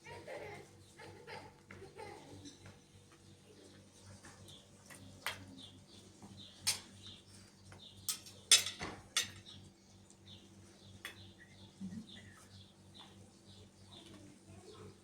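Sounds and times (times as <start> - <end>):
faint bird chirping: 9.4 - 15.0.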